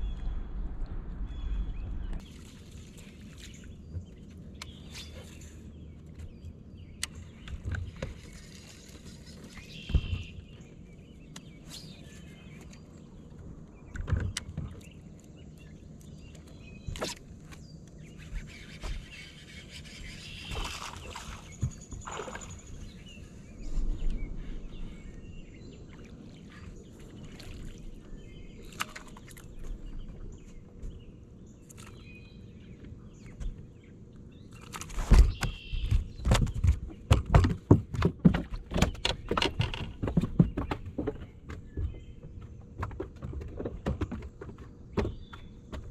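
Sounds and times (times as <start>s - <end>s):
gear knocking against boat hull: 35.3s - 45.9s.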